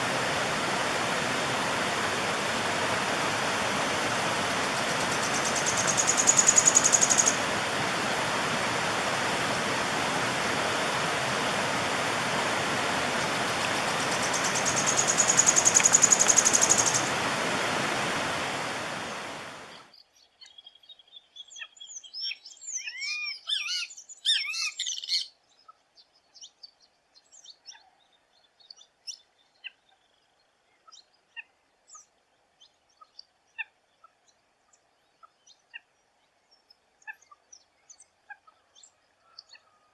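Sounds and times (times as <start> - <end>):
rushing stream water: 0.0 - 19.9
bird singing high trills: 4.6 - 7.5, 13.4 - 17.2
bird squeaky looping calls: 4.7 - 7.5, 13.3 - 17.2
bird short chirps: 5.1 - 7.4, 13.9 - 17.1.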